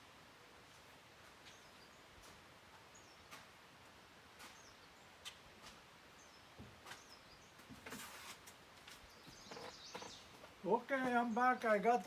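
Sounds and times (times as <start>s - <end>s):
brief rustle: 7.7s - 10.5s.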